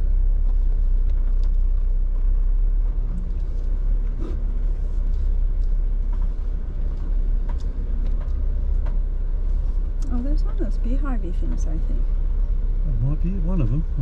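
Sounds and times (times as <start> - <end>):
vehicle knocks and rattles: 0.0 - 12.8
vehicle engine rumbling low: 0.0 - 14.0.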